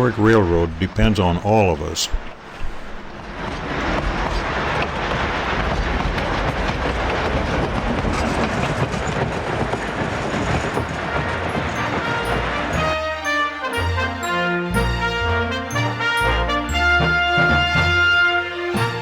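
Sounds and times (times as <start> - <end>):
train rumbling along track: 0.0 - 19.0
wheels clattering over rail: 2.2 - 14.3, 16.6 - 19.0.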